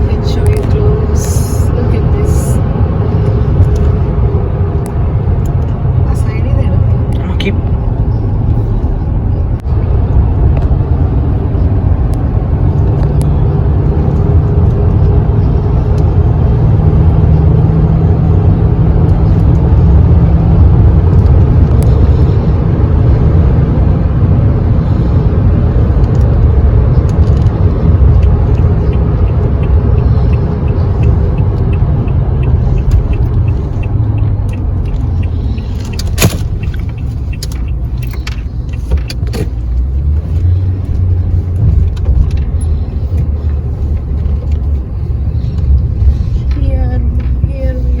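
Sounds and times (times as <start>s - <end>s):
truck engine and road rumble: 0.0s - 48.0s
light regular ticks: 27.0s - 44.8s.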